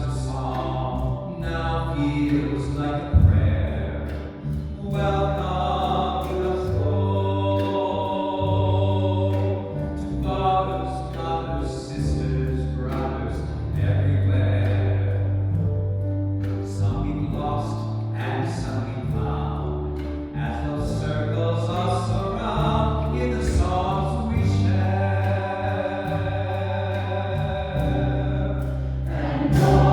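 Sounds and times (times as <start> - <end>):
solo singer: 0.0 - 15.6, 16.5 - 29.9
choir singing held chords: 24.2 - 29.9.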